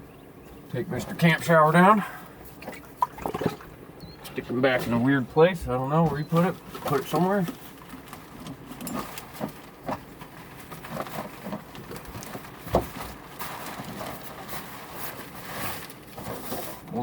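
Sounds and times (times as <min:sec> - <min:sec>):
rustling: 0:04.6 - 0:17.0.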